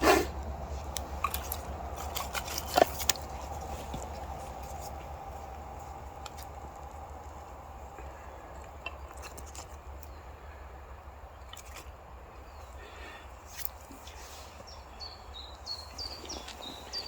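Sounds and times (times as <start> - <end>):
campfire crackling: 0.0 - 11.0
steady low rumble: 0.0 - 12.9.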